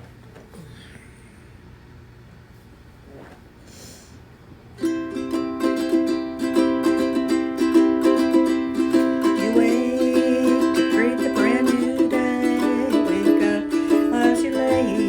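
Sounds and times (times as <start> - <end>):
ukulele strumming chords: 4.8 - 15.0
sliding melody line: 6.6 - 15.0.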